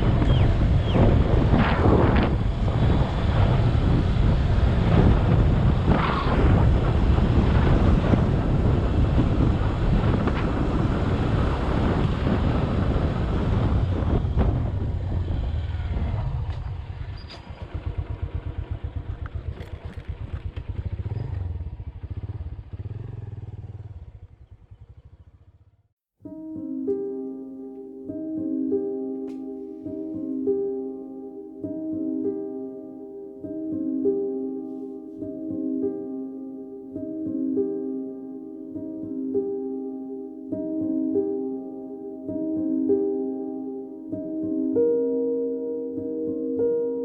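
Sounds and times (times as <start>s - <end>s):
wind on microphone: 0.0s - 23.9s
motorcycle engine: 0.0s - 25.9s.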